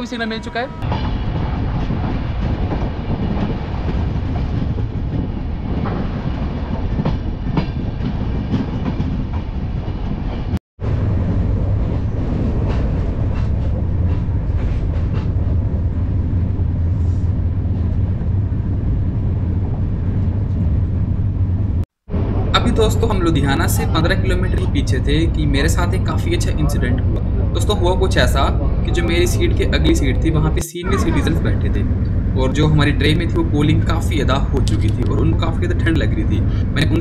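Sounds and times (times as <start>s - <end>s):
low rumble inside train coach: 0.0s - 37.0s
train running noise: 0.0s - 37.0s.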